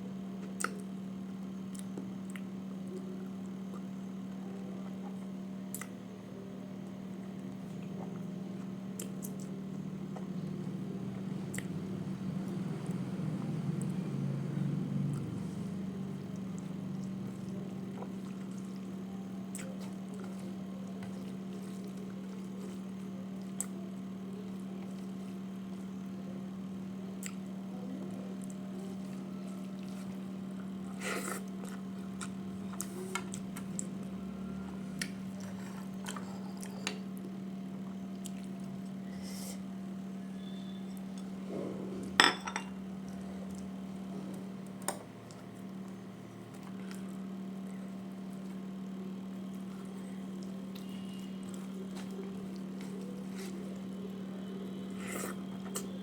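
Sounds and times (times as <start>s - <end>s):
plates and dishes clinking: 42.2s - 42.7s.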